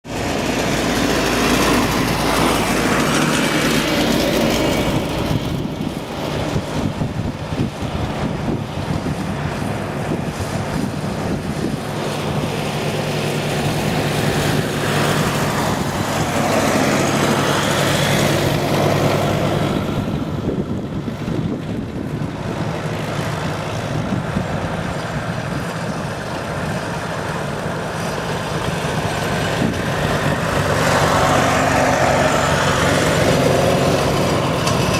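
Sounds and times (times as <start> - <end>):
tractor engines running: 0.0 - 34.9.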